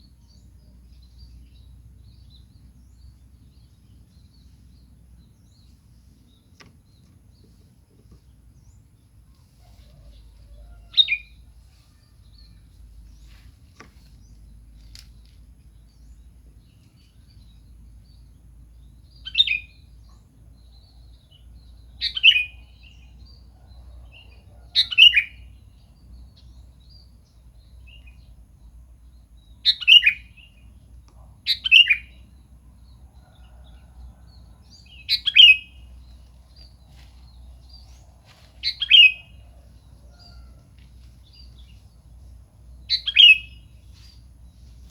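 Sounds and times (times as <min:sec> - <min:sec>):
bulbul calling: 0:24.8 - 0:25.4, 0:29.6 - 0:30.5, 0:31.5 - 0:32.2, 0:34.9 - 0:35.8, 0:38.6 - 0:39.6, 0:42.9 - 0:43.7.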